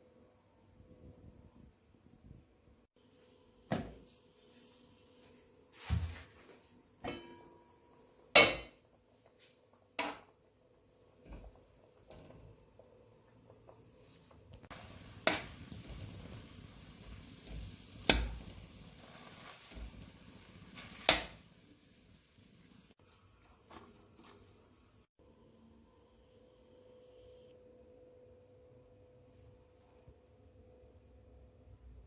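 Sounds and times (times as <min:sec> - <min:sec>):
sizzling hiss: 0:10.8 - 0:25.1.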